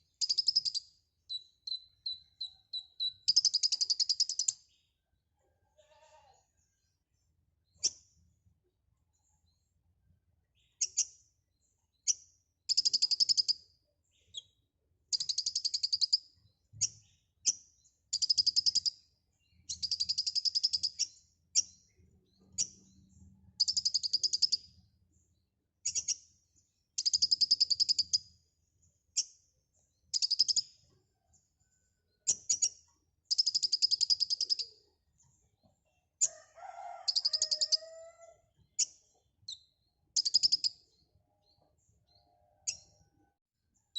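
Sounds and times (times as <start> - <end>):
bird singing buzzy trills: 0.0 - 4.5.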